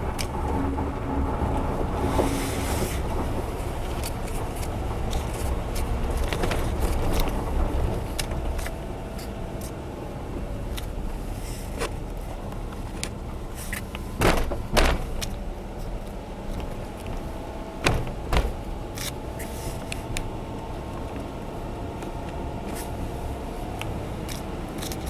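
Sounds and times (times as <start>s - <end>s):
car engine from inside cabin: 0.0s - 25.0s
light clicks and rattles: 3.0s - 9.8s
loud knocks: 14.1s - 15.5s, 17.8s - 18.9s.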